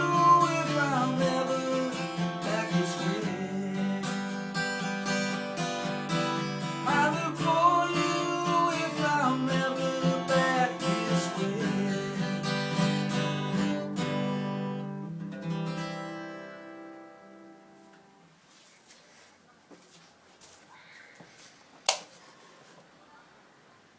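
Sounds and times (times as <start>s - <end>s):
acoustic guitar strumming: 0.0s - 18.3s.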